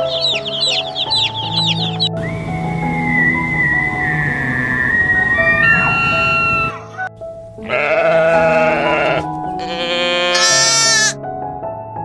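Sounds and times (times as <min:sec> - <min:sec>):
background music with held tones: 0:00.0 - 0:12.0
goat bleating: 0:07.6 - 0:11.2.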